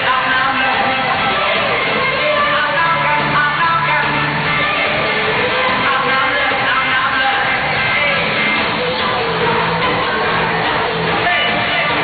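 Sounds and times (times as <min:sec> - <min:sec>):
guitar: 0:00.0 - 0:12.0
live rock band music: 0:00.0 - 0:12.0.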